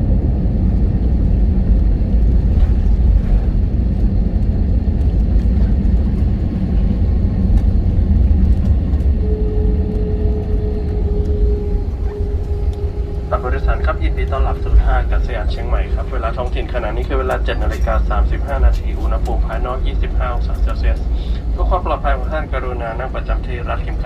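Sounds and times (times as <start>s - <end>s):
jet engines and wheels rumbling: 0.0s - 24.0s
faint steady hum: 6.9s - 24.0s.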